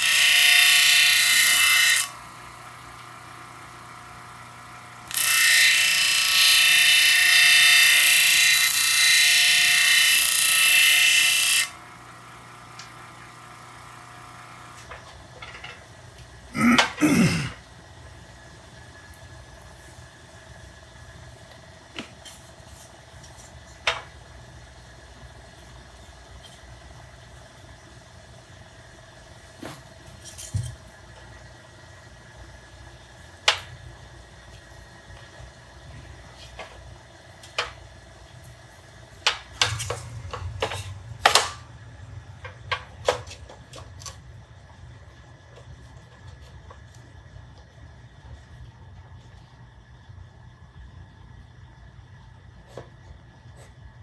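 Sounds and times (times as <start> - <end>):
power tool running: 0.0 - 14.9
low steady hum: 11.8 - 54.0.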